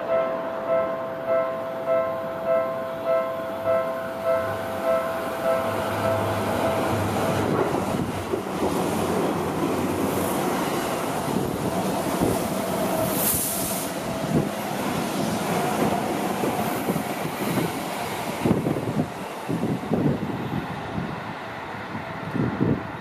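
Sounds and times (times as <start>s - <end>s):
train running past: 0.0s - 23.0s
brief high hiss: 13.0s - 14.0s.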